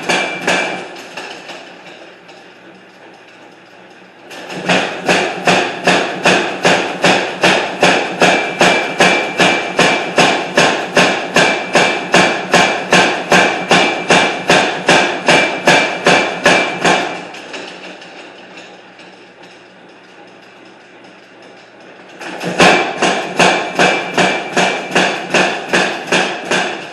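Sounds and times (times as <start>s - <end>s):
hammer striking iron on anvil: 0.0s - 2.0s, 4.3s - 18.2s, 22.2s - 26.9s.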